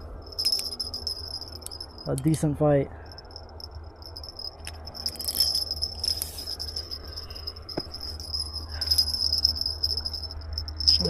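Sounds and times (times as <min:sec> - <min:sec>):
low rumble: 0:03.0 - 0:11.0
insects trilling: 0:03.1 - 0:11.0.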